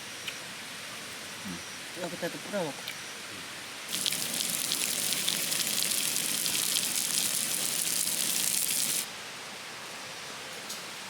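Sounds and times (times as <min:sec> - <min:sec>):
food sizzling on a hot pan: 0:03.9 - 0:09.1
stream rushing: 0:03.9 - 0:09.1.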